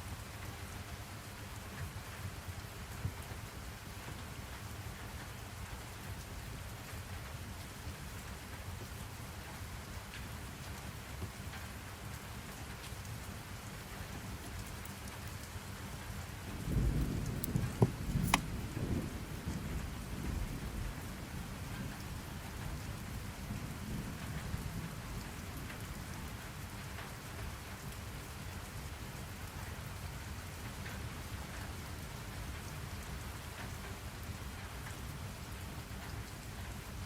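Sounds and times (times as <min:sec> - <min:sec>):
steady rain: 0:00.0 - 0:37.0
thunder rumbling with cracks: 0:16.4 - 0:25.4.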